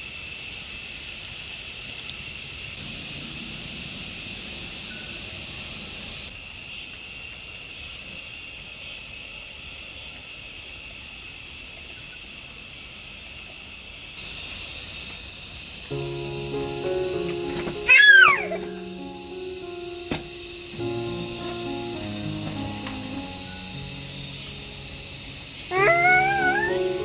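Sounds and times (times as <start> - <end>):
outdoor ambient noise: 0.0 - 12.9, 13.6 - 27.0
insects buzzing: 14.2 - 27.0.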